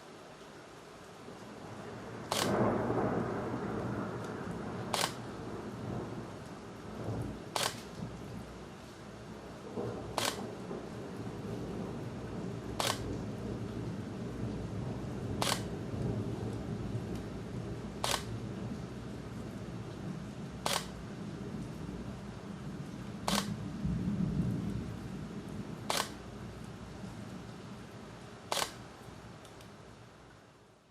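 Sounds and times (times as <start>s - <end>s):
low storm rumble: 1.0s - 30.3s
sharp click: 2.3s - 2.6s, 4.9s - 5.2s, 7.6s - 7.9s, 10.2s - 10.4s, 12.8s - 13.0s, 15.4s - 15.7s, 18.0s - 18.3s, 20.6s - 20.9s, 23.3s - 23.5s, 25.9s - 26.2s, 28.5s - 28.8s.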